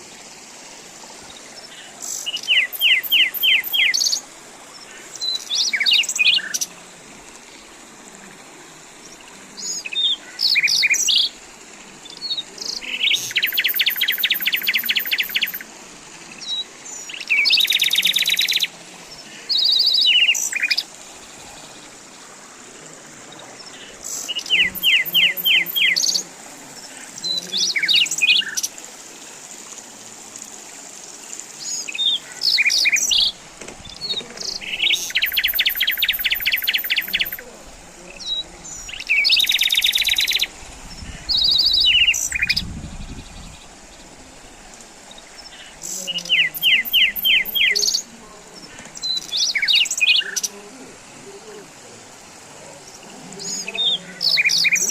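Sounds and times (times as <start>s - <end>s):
faint steady background hiss: 0.0s - 54.9s
songbirds trilling and chirping: 0.0s - 54.9s.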